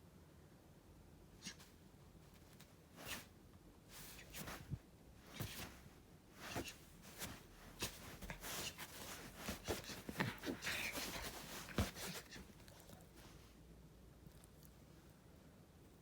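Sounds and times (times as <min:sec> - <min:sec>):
puppy rustling: 0:03.9 - 0:13.6.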